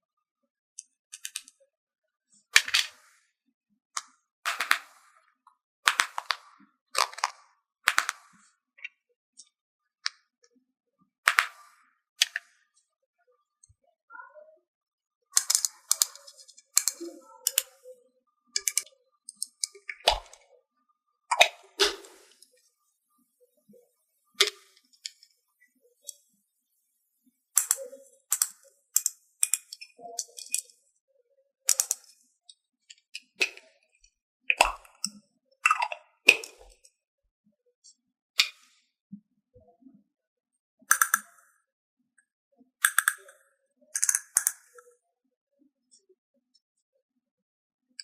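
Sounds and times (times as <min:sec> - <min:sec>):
plastic toy pieces clicking: 0:01.1 - 0:01.6, 0:02.5 - 0:03.1, 0:04.0 - 0:05.1, 0:05.8 - 0:08.4, 0:11.3 - 0:12.5, 0:15.4 - 0:17.8, 0:18.6 - 0:20.5, 0:24.4 - 0:25.3, 0:27.6 - 0:30.8, 0:31.7 - 0:33.6, 0:34.5 - 0:36.9, 0:40.9 - 0:41.4, 0:42.8 - 0:43.4, 0:44.0 - 0:44.9.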